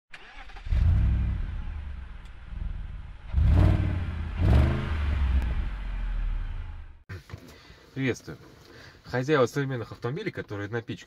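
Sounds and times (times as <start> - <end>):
car engine revving: 0.2 - 7.0.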